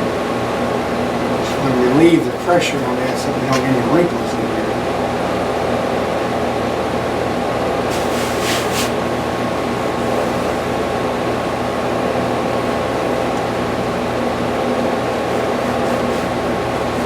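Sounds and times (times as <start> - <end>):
fan humming: 0.0 - 17.0
scratchy rustle: 7.9 - 9.0, 15.2 - 17.0.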